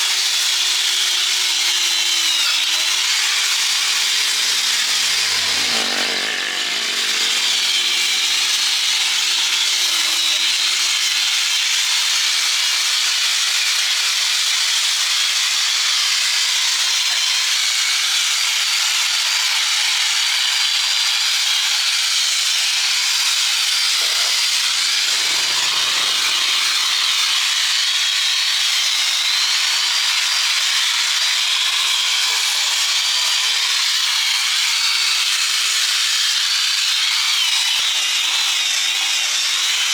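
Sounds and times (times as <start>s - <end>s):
angle grinder grinding metal: 0.0s - 13.0s, 19.3s - 39.9s.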